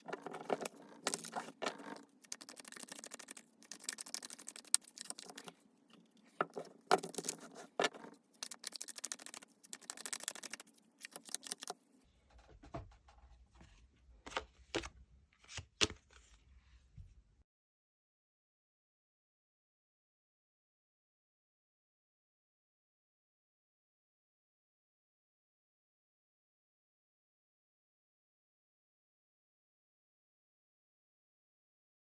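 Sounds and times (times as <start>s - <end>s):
cards being shuffled: 0.0s - 5.5s, 6.5s - 11.8s.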